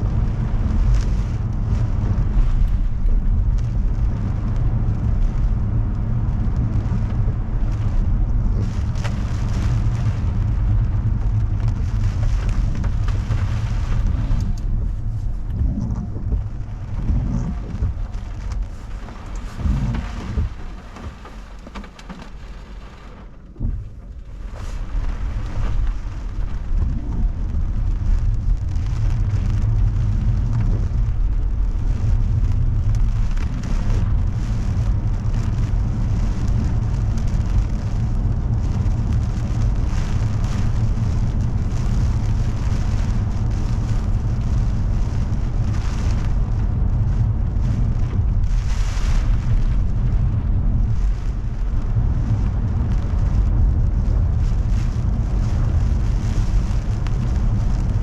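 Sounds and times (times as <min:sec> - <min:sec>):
deep low rumble: 0:00.0 - 0:58.0
heavy rain on a car: 0:00.0 - 0:58.0.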